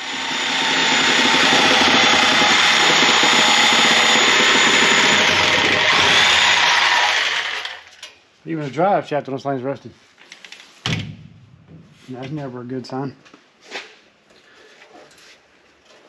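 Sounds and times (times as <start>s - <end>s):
electric motor whining: 0.0s - 7.9s.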